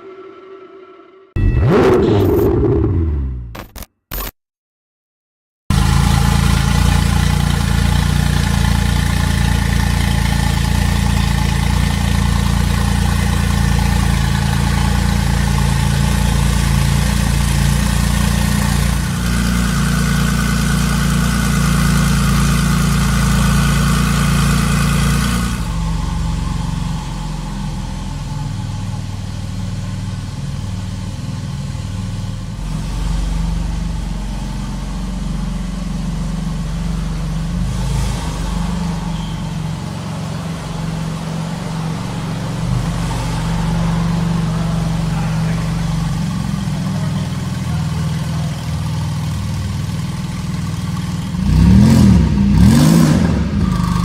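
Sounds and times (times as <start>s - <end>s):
car engine idling: 5.7s - 54.0s.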